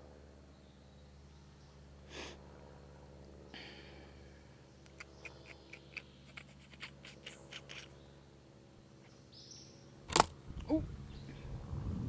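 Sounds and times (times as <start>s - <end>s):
camera handling noise: 4.9s - 7.9s, 10.1s - 10.4s.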